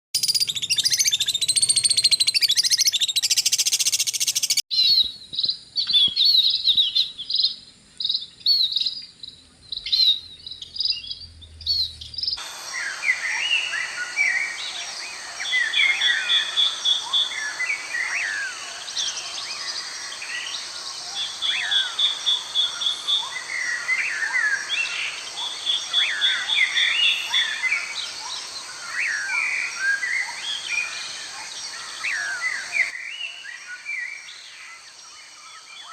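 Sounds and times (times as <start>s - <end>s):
small birds chirping: 0.2s - 35.9s
steady high hiss: 12.4s - 35.9s.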